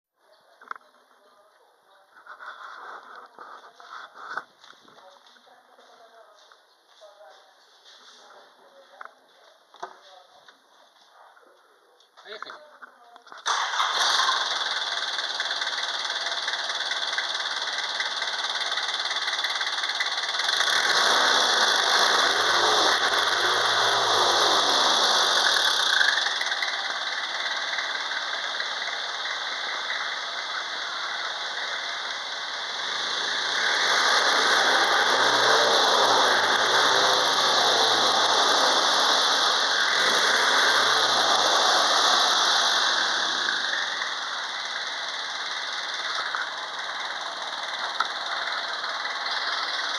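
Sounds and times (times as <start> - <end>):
diesel engine revving and idling: 13.4 - 49.9.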